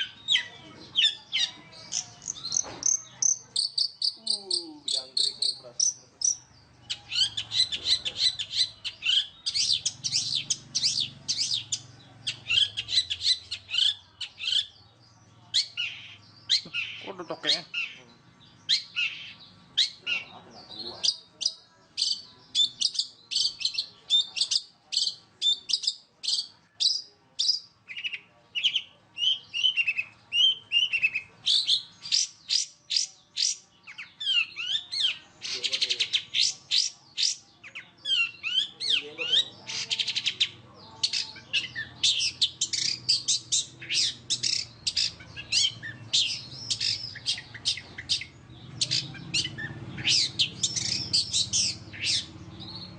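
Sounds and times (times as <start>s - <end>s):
buzzy rattling bird trills: 0.0s - 14.8s, 29.3s - 52.9s
shrike singing chirps and whistles: 0.0s - 14.8s, 15.5s - 18.0s, 18.6s - 52.9s.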